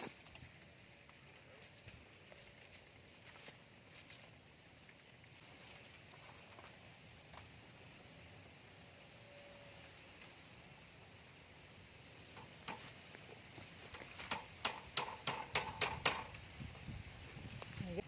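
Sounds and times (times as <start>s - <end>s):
hammer striking nails: 14.2s - 16.4s.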